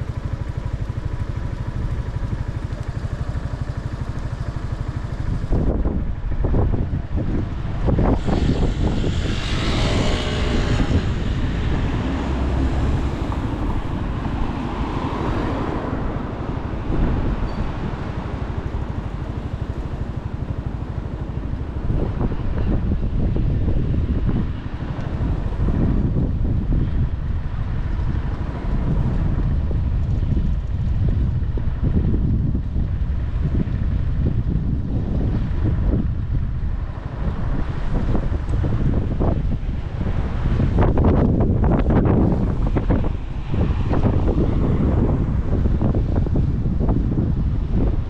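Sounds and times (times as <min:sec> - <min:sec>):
motorcycle engine: 0:00.0 - 0:47.9
wind rushing over microphone: 0:00.0 - 0:48.0.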